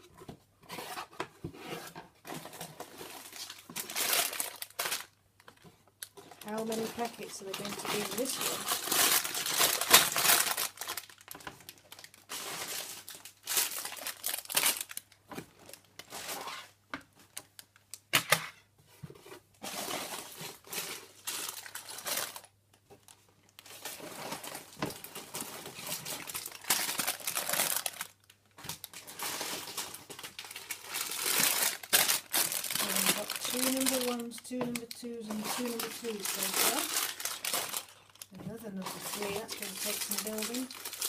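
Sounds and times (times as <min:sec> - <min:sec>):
plastic bags crinkling: 0:02.4 - 0:18.1, 0:19.6 - 0:41.0.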